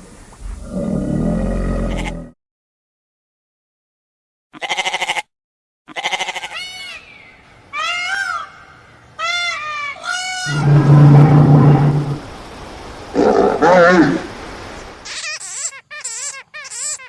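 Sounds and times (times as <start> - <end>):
goats bleating: 1.9 - 2.2, 4.6 - 5.2, 5.9 - 6.6.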